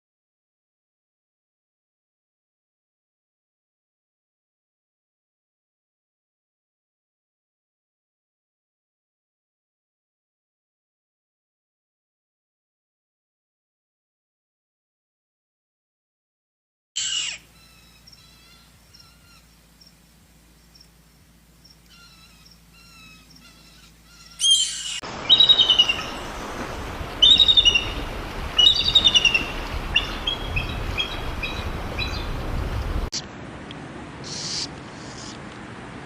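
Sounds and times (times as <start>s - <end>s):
birds chirping: 17.0s - 33.3s.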